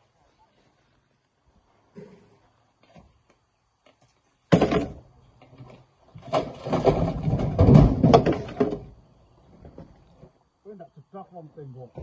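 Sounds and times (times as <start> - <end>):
rocks crashing into metal truck bed: 4.5 - 5.0, 6.2 - 9.0.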